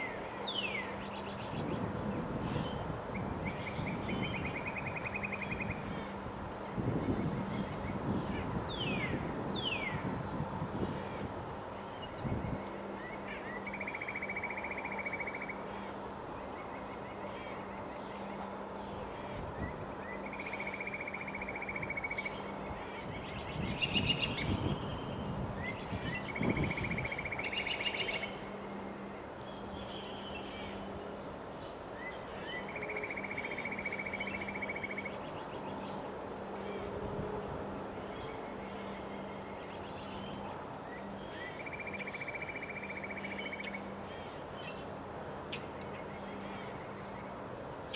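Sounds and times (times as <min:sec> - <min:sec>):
birds singing: 0:10.8 - 0:30.9.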